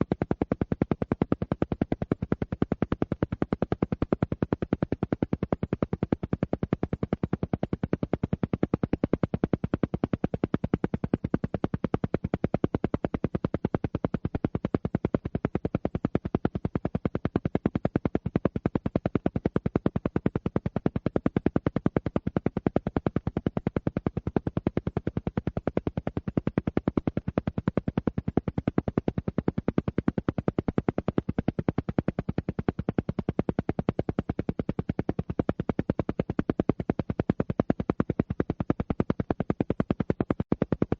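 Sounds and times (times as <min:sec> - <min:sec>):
rapidly pulsing tone: 0:00.0 - 0:40.9.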